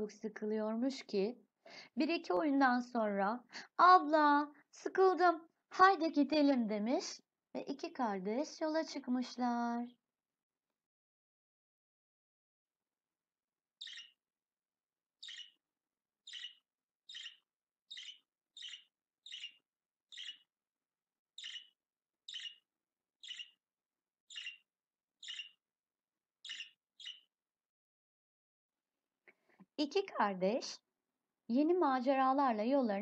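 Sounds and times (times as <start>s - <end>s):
bird chirping: 13.8s - 14.2s, 15.2s - 15.6s, 16.2s - 20.5s, 21.3s - 23.6s, 24.2s - 25.6s, 26.4s - 27.3s.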